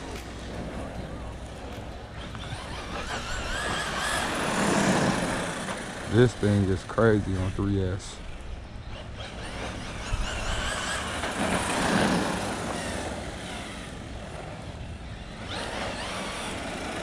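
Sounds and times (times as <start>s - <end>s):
electric motor whining: 0.0s - 17.0s
steady rushing noise: 0.0s - 17.0s.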